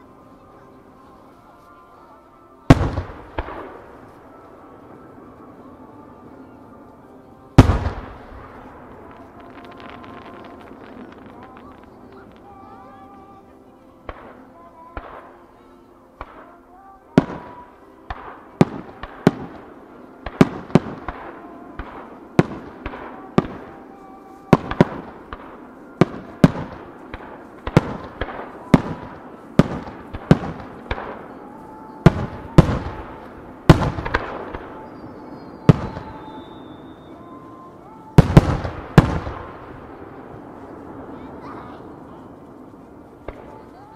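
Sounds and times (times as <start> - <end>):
fireworks bursting with bangs: 2.7 - 6.2, 7.5 - 15.5, 16.2 - 43.9
falling whistle: 34.8 - 37.5.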